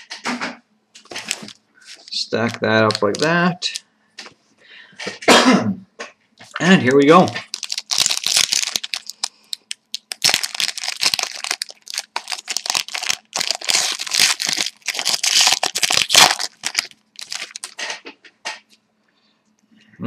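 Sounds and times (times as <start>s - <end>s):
foil wrapper tearing and crinkling: 1.1s - 3.8s, 6.4s - 18.0s.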